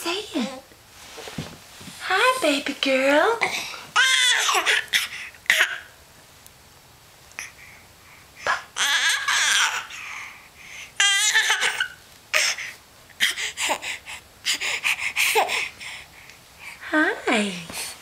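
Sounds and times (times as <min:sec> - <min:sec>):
baby squealing and laughing: 0:04.0 - 0:05.9, 0:08.4 - 0:10.0, 0:11.0 - 0:13.8.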